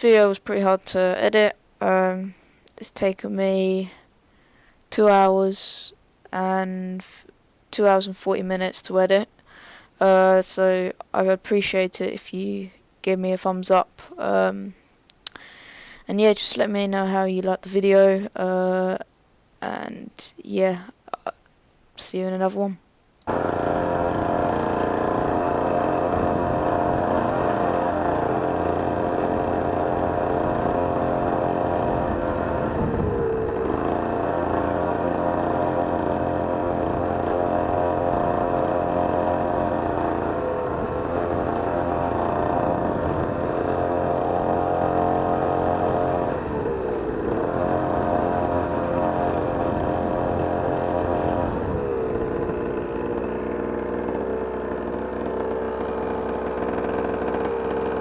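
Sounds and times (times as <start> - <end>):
two-stroke dirt bike engine: 23.2 - 58.0.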